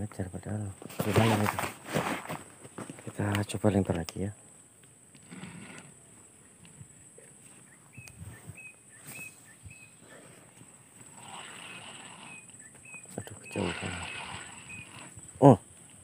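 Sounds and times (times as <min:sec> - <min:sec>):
small bird chirping: 0:06.0 - 0:16.0.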